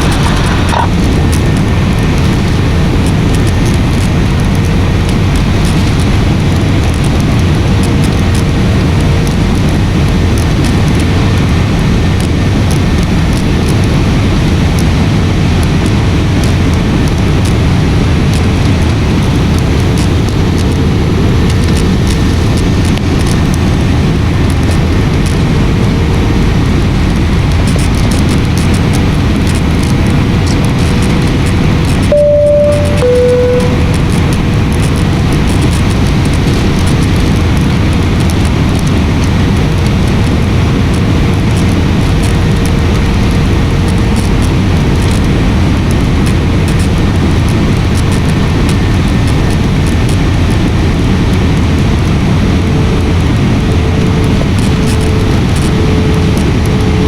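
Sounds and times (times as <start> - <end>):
airliner engines and airflow rumble: 0.0 - 57.0
faint steady hum: 32.1 - 35.1.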